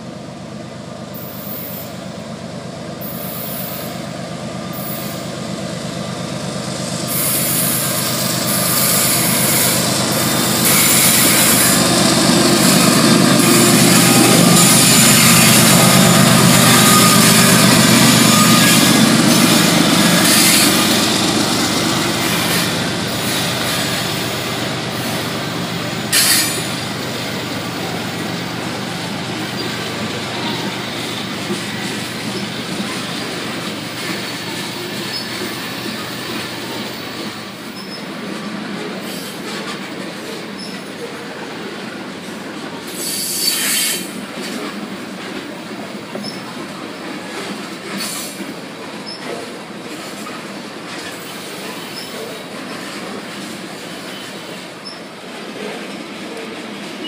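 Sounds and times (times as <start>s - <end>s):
diesel locomotive rumble: 0.0s - 39.0s
freight cars rolling on rails: 6.5s - 57.0s.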